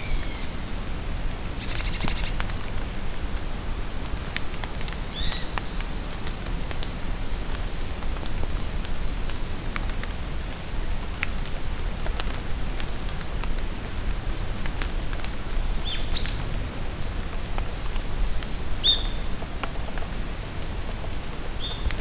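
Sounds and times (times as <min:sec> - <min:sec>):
rain pattering in a forest: 0:00.0 - 0:22.0
bird calls: 0:17.7 - 0:20.2.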